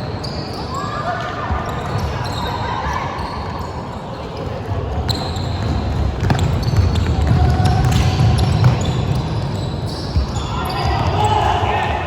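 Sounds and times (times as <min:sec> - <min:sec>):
noise of play on court: 0:00.0 - 0:12.0
basketball bouncing: 0:05.5 - 0:09.5.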